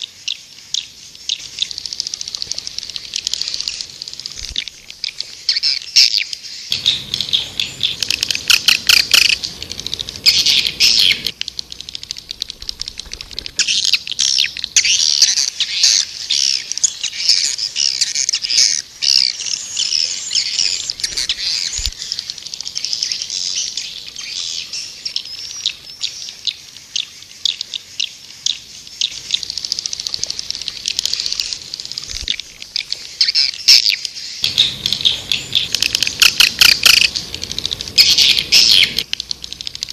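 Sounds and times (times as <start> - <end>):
twittering bird chirps and trills: 0.0 - 39.9.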